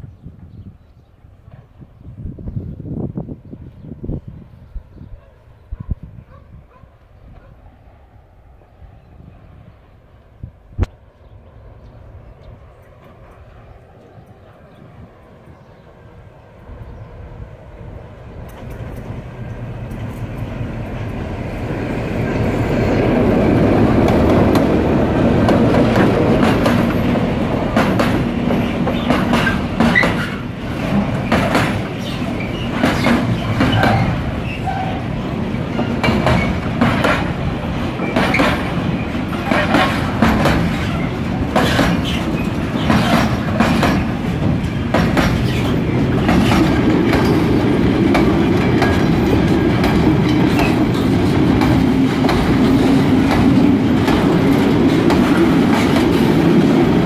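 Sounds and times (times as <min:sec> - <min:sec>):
diesel locomotive passing: 0:00.0 - 0:57.0
freight wagons rumbling: 0:18.2 - 0:57.0.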